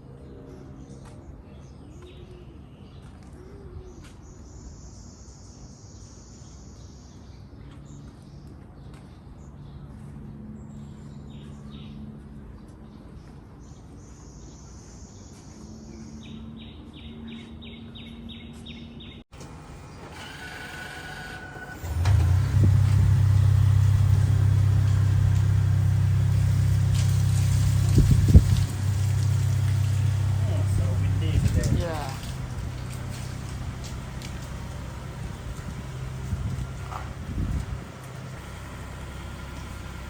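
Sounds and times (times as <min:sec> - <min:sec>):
steady low rumble: 0:22.1 - 0:40.0.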